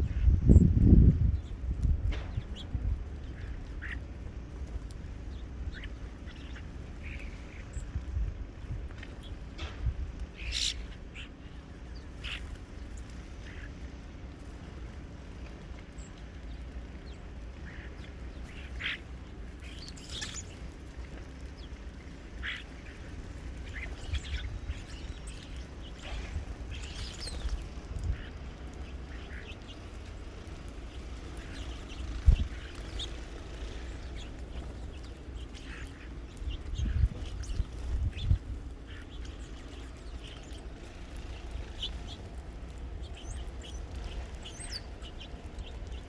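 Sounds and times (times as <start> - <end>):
birds calling: 0.0 - 46.0
steady low rumble: 0.0 - 46.0.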